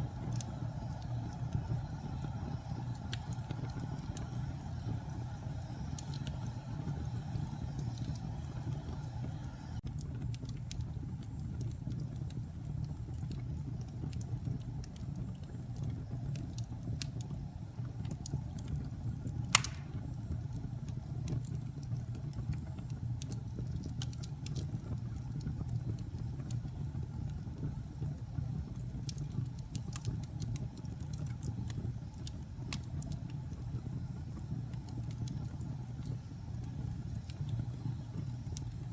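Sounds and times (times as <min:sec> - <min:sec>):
fire crackling: 0:00.0 - 0:38.9
fire flames rumbling: 0:00.0 - 0:38.9
loud wood pop: 0:19.6 - 0:20.0.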